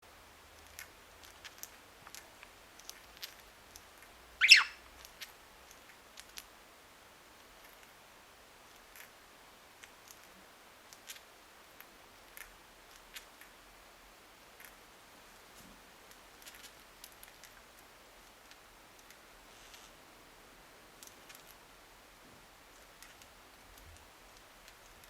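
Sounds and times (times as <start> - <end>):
bird chirp falling in pitch: 4.4 - 4.8.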